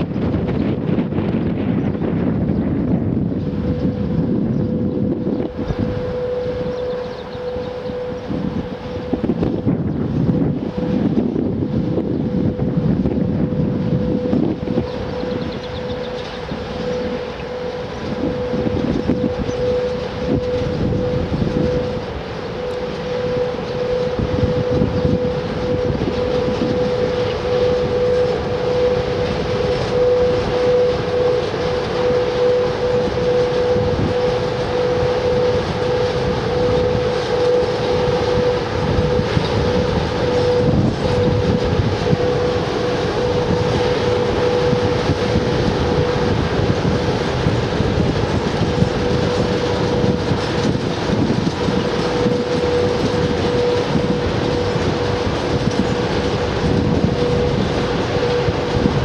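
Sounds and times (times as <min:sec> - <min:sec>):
train running: 0:00.0 - 0:59.0.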